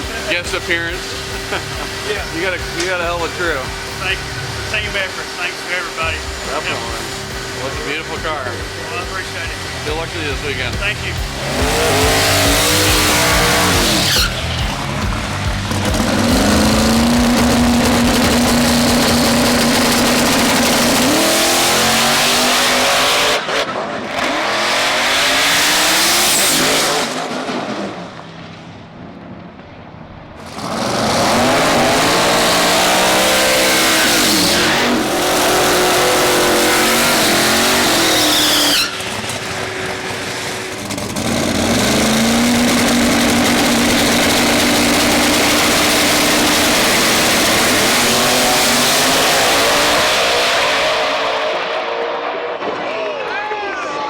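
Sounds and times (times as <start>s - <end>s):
racing car engine revving: 0.0s - 28.4s, 30.4s - 53.0s.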